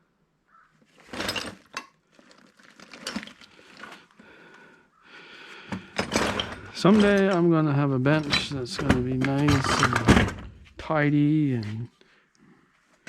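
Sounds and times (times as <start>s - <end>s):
metal parts rattling: 1.0s - 4.0s, 5.7s - 10.8s
metal tools clinking on bench: 6.0s - 7.4s, 8.2s - 10.4s.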